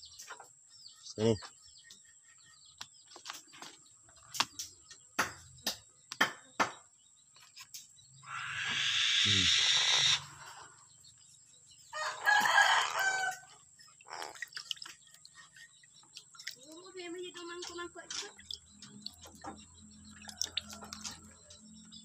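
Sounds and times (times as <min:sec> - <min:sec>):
long harsh bird calls: 0:08.1 - 0:22.0.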